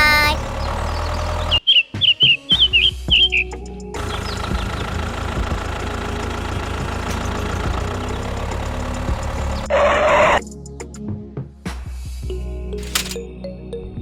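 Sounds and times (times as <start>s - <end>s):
tractor engine idling: 4.0s - 9.6s.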